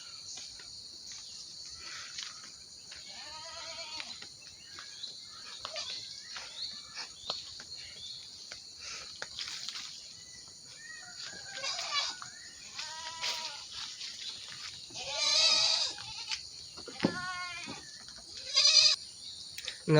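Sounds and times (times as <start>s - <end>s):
goat bleating: 3.1s - 4.1s, 11.6s - 13.7s, 14.9s - 17.8s, 18.4s - 19.0s.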